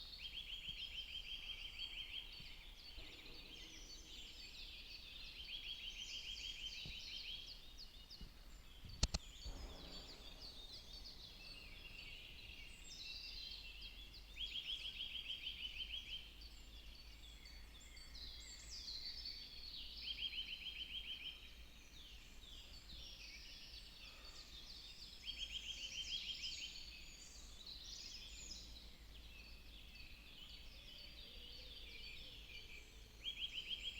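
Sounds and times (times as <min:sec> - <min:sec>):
sharp click: 0:09.0 - 0:09.4.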